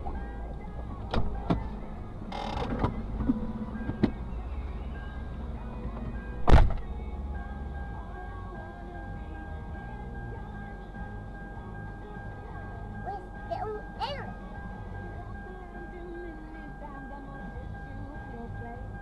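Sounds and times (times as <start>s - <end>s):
vehicle engine idling: 0.0s - 19.0s
loud thump: 6.4s - 6.9s.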